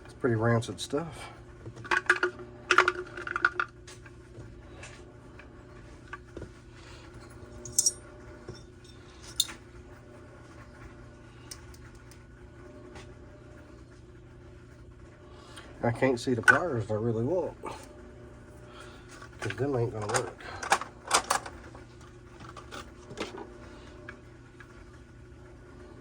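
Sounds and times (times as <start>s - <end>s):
low steady hum: 0.0s - 26.0s
small metal parts clinking: 7.6s - 8.0s, 8.8s - 9.6s.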